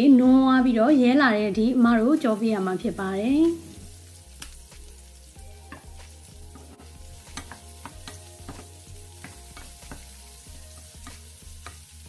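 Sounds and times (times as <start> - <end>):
shallots sizzling in oil: 0.0 - 12.0
spatula scraping a wok: 5.6 - 12.0.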